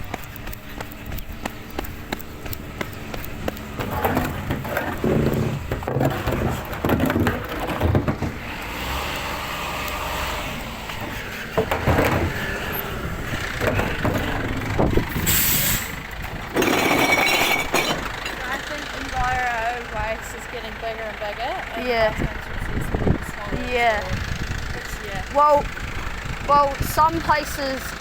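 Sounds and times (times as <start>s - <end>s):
truck engine rumble: 0.0s - 28.0s
glass knocks and clatters: 16.5s - 18.4s.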